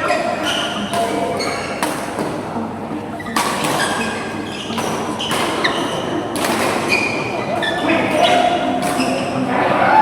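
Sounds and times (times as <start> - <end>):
shoe squeaks on floor: 0.0 - 1.8, 3.2 - 6.2, 6.8 - 9.4
indoor hall background noise: 0.0 - 10.0.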